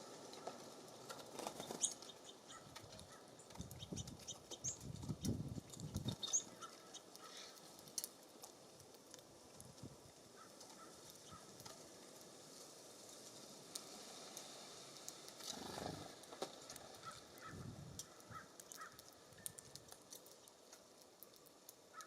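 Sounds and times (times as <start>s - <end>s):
small birds chirping: 0.4s - 8.2s, 10.3s - 11.7s, 15.0s - 22.0s.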